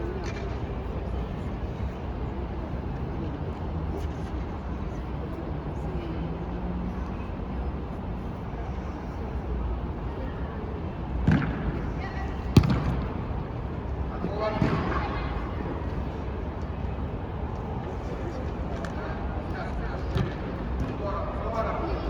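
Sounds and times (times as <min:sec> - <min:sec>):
football being kicked: 0:11.2 - 0:11.7, 0:12.5 - 0:13.2, 0:14.5 - 0:15.0, 0:20.1 - 0:21.0.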